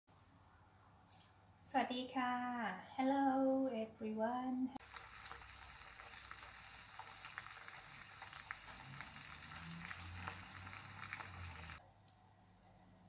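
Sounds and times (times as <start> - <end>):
nuts frying in hot oil: 4.8 - 11.8.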